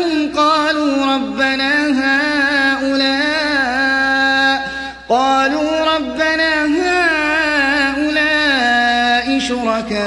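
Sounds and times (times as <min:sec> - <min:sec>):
man chanting melodically: 0:00.0 - 0:10.0.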